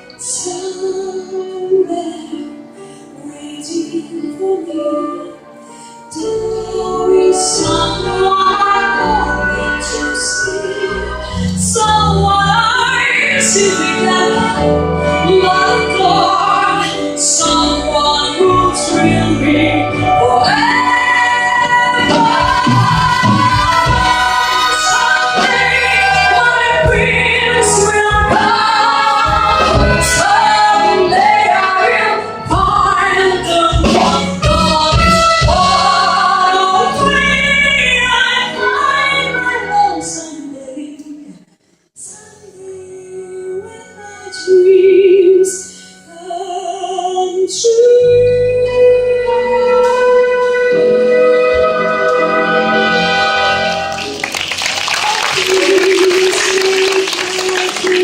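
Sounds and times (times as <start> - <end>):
person singing: 54.9 - 58.0.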